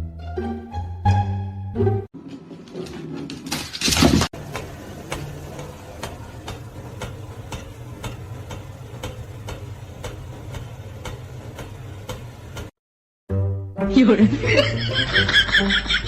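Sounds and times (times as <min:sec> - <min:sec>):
mechanical ticking: 0:04.5 - 0:12.7.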